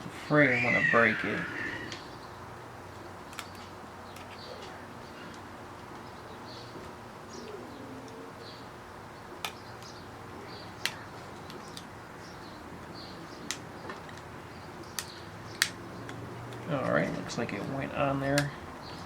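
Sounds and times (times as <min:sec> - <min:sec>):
low cooing: 0:00.6 - 0:02.0, 0:07.4 - 0:08.5.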